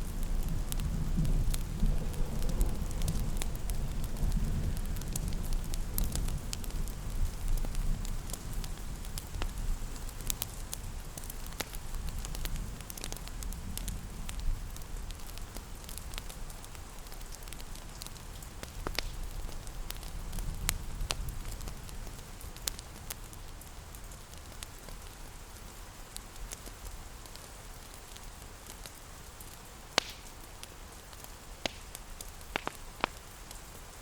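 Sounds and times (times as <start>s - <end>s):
rain hissing: 0.0s - 34.0s
wood fire crackling: 0.0s - 34.0s.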